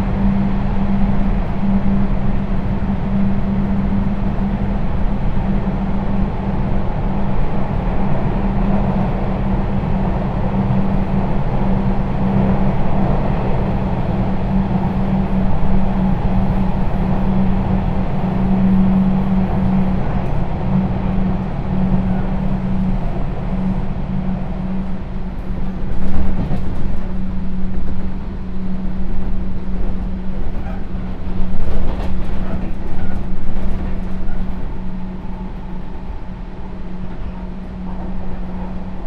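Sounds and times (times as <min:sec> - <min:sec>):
electric train inverter hum: 0:00.0 - 0:39.0
train wheels rumbling on rails: 0:00.0 - 0:39.0.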